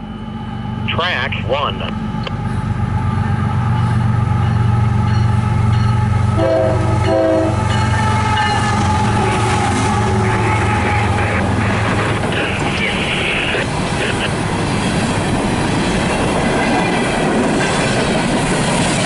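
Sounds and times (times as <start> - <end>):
locomotive engines droning: 0.0 - 19.0
locomotive horn blasts: 6.3 - 11.5.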